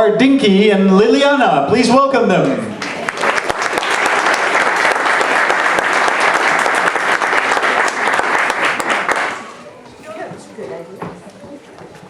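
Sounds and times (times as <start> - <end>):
audience clapping: 2.4 - 9.6.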